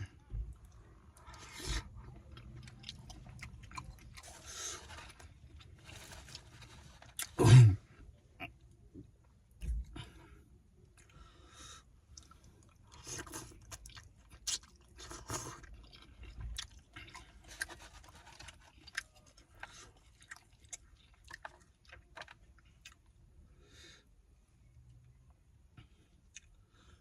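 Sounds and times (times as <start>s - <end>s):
person chewing food: 0.7s - 7.4s, 12.1s - 23.2s, 25.9s - 26.6s.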